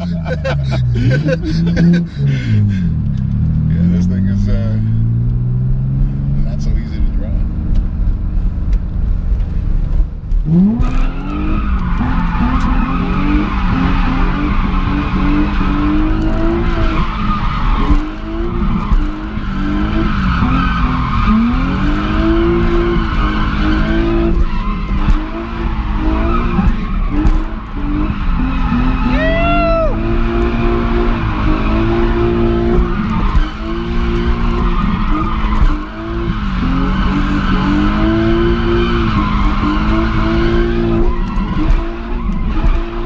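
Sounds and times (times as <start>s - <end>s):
car engine revving: 0.0s - 43.0s
tyres squealing and skidding: 10.5s - 43.0s.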